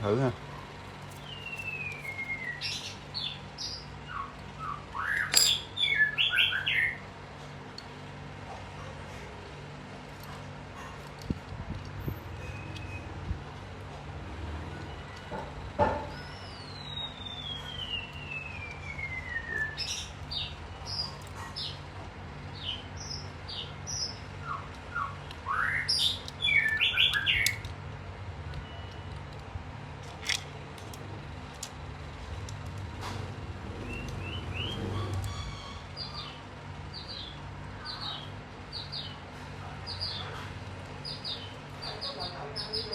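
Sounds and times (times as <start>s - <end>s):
songbirds chirping: 0.0s - 7.2s, 14.4s - 29.4s, 33.6s - 42.9s.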